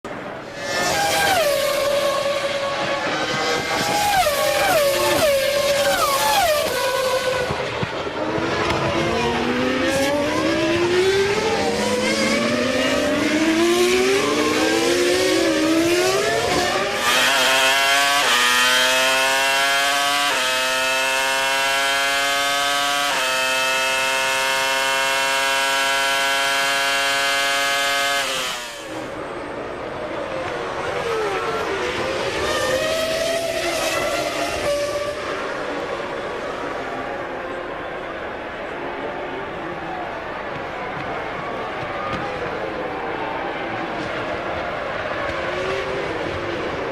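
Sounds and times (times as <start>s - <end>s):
racing engine high note with gear changes: 0.1s - 41.4s
racing cars accelerating past: 0.5s - 29.2s.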